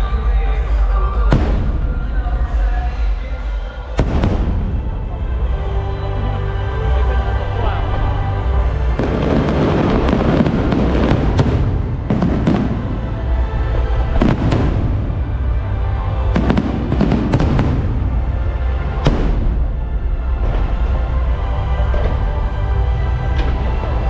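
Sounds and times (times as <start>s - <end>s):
music: 0.0s - 24.0s
fireworks bangs: 1.3s - 2.4s, 4.0s - 5.2s, 9.0s - 15.6s, 16.2s - 20.6s
fireworks crackling: 9.0s - 19.8s.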